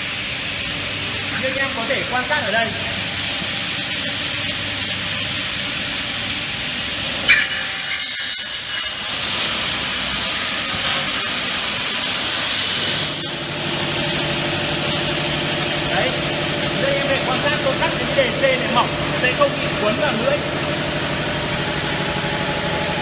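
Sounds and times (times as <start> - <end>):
saw cutting metal ringing whine: 7.1 - 23.0.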